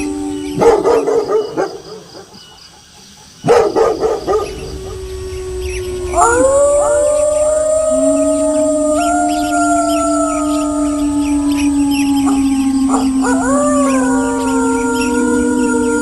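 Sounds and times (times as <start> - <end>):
wolves howling: 0.0 - 2.4, 3.5 - 16.0
dogs barking: 0.5 - 2.4, 3.4 - 4.8.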